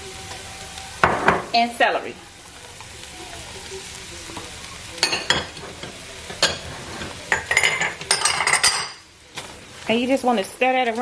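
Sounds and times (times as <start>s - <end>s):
vegetables sizzling in a pot: 0.0s - 11.0s
spoon clinking and scraping pot: 5.0s - 9.5s.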